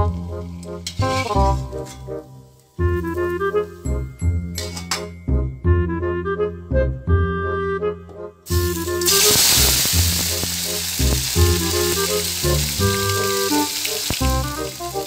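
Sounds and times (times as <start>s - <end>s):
background music with melody: 0.0s - 15.0s
vegetables sizzling in hot oil: 8.5s - 15.0s.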